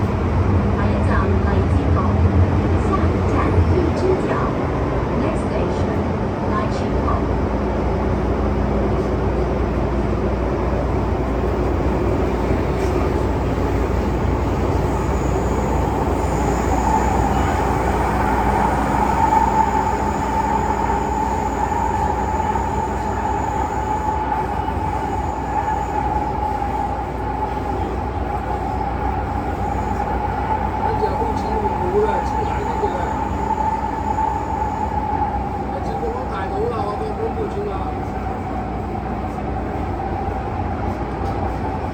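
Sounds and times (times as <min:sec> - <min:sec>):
train wheels rumbling: 0:00.0 - 0:41.9
steady high tone: 0:14.0 - 0:36.7.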